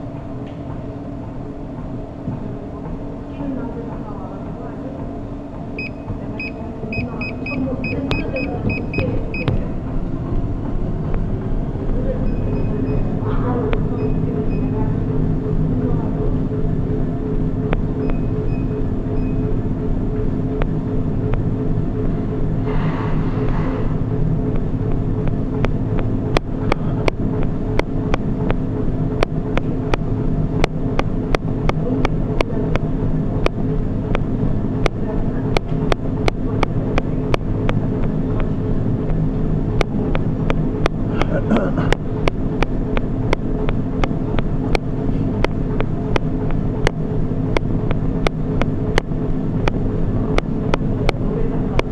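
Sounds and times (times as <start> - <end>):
steady low rumble: 0.0 - 51.9
treadmill motor hum: 0.0 - 51.9
high treadmill button beeps: 5.8 - 9.7, 12.2 - 13.2, 13.8 - 14.8, 18.0 - 19.6.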